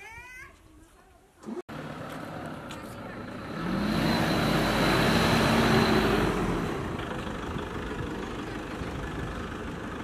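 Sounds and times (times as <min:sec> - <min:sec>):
car engine running: 0:01.7 - 0:10.0.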